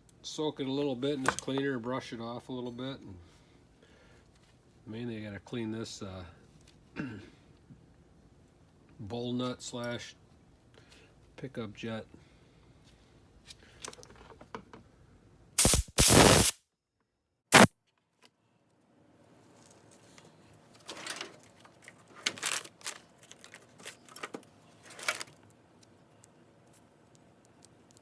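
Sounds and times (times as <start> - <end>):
hissing spray blasts: 15.6 - 16.6.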